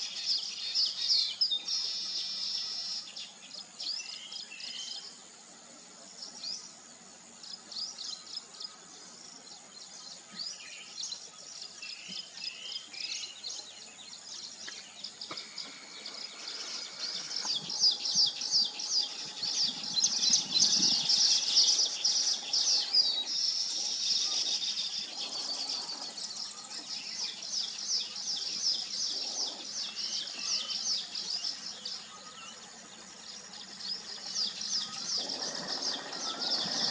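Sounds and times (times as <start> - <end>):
weaver birds chattering: 7.4 - 36.9.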